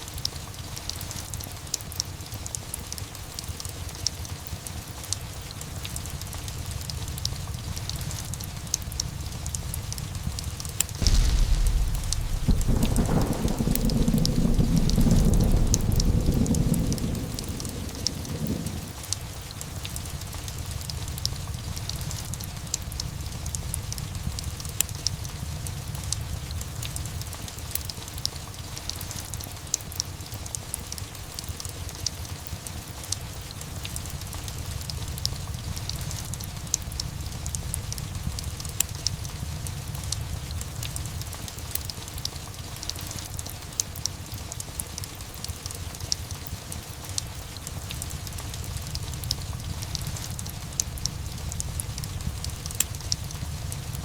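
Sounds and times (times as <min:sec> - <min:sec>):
steady rain: 0:00.0 - 0:54.0
fireplace crackling: 0:06.5 - 0:26.7
low thunder rumble: 0:06.7 - 0:27.2, 0:48.2 - 0:54.0.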